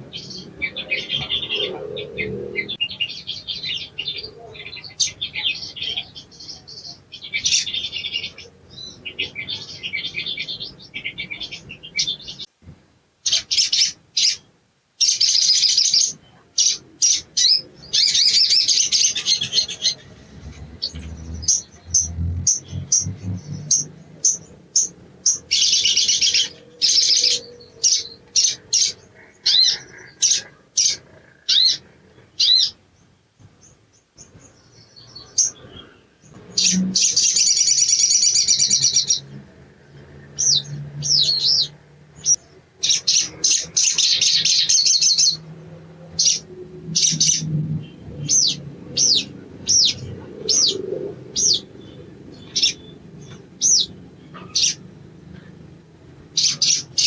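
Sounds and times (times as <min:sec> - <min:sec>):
bird chattering: 0:15.0 - 0:32.8, 0:48.3 - 0:55.7, 0:56.3 - 0:57.0.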